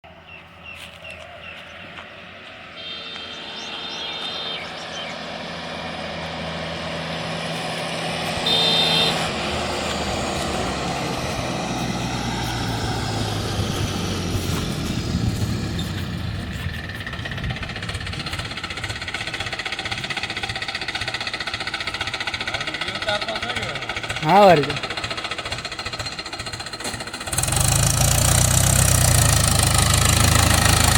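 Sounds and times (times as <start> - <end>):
tractor engine running: 0.1 - 30.9
vehicle horn honking: 2.6 - 4.8, 8.4 - 9.9.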